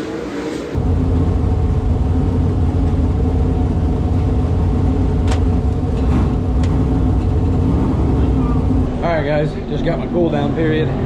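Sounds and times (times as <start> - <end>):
race car engine running: 0.8 - 11.0.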